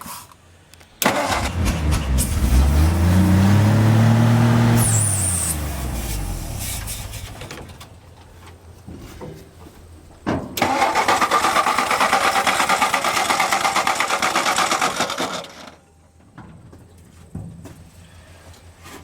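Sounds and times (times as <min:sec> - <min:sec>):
starter cranking engine: 0:01.0 - 0:04.2, 0:10.6 - 0:15.8.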